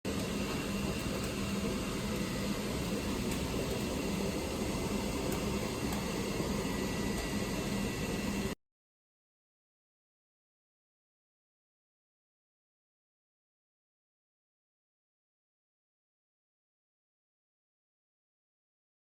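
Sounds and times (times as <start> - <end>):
mechanical hum with hiss: 0.1 - 8.6.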